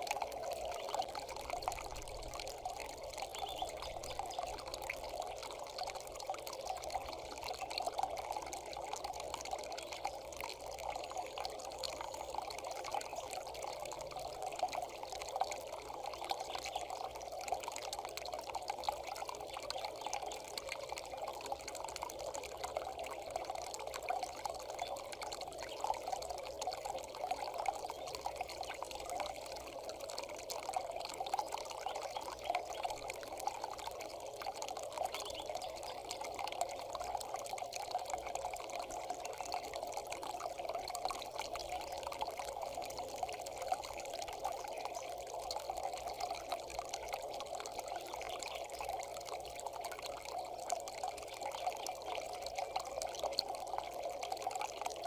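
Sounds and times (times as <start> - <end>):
water trickling and pouring: 0.0 - 55.0.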